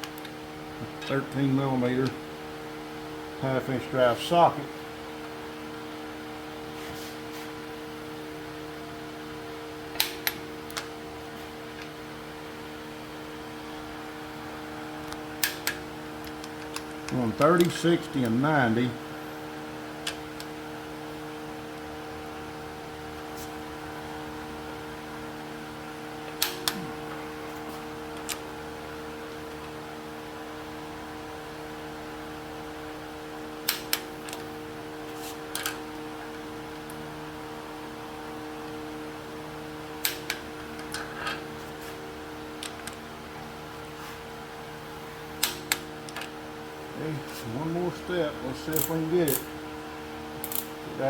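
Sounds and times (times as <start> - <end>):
steady hum: 0.0 - 51.0
torque wrench clicks: 48.7 - 49.5, 50.4 - 50.8.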